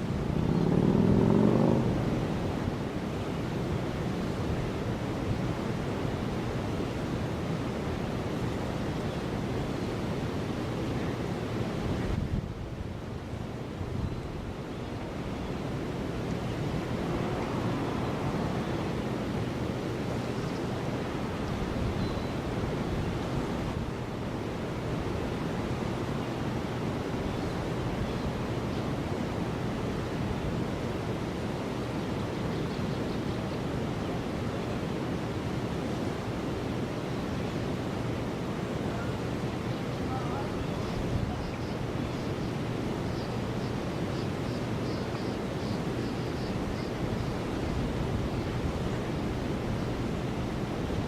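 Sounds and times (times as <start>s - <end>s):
river water flowing: 0.0s - 51.0s
wind: 0.0s - 51.0s
wind rushing: 15.9s - 19.8s.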